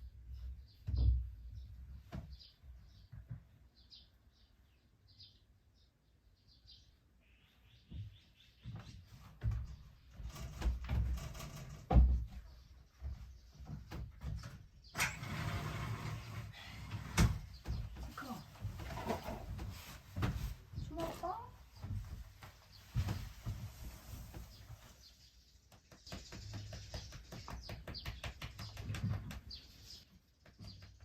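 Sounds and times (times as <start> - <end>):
small birds chirping: 0.0 - 15.0, 16.0 - 31.0
rustling from handling things: 15.3 - 25.4.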